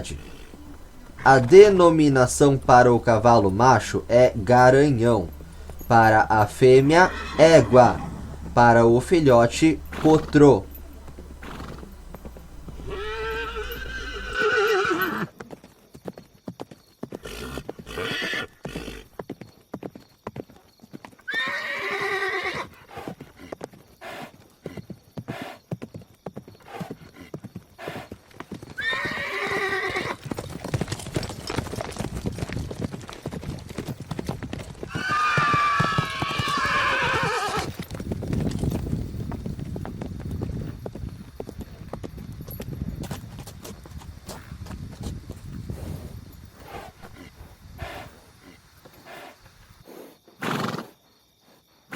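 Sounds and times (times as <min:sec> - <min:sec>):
horse whinnying: 0:00.0 - 0:15.3, 0:17.2 - 0:19.1, 0:21.3 - 0:23.2, 0:28.7 - 0:30.7, 0:34.9 - 0:37.9, 0:50.4 - 0:50.9
hooves clip-clopping: 0:00.0 - 0:49.9.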